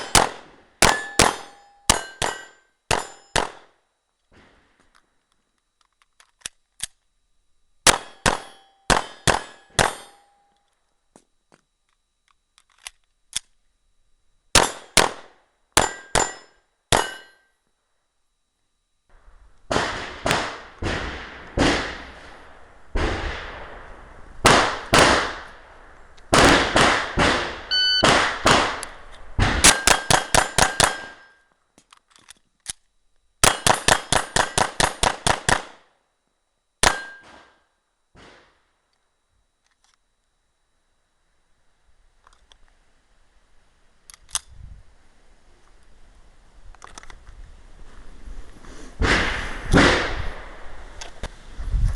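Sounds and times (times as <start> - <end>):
gunshots: 0.0 - 3.6, 7.8 - 10.2, 14.5 - 17.2, 19.7 - 23.8, 24.4 - 25.7, 26.3 - 31.3, 33.4 - 35.8, 36.8 - 37.6, 49.0 - 50.7.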